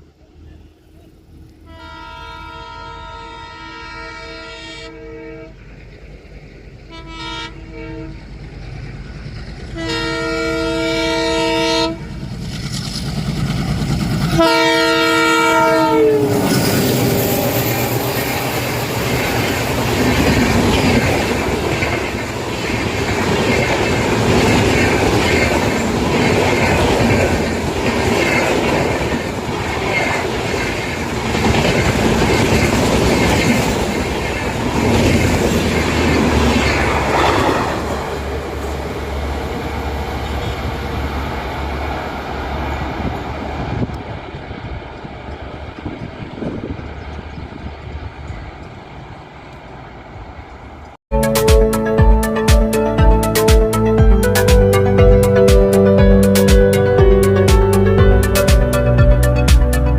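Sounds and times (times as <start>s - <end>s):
train coaches rumbling by: 0.0s - 59.9s
locomotive air horn: 1.6s - 5.6s, 6.9s - 8.2s, 9.8s - 12.2s, 14.4s - 18.8s.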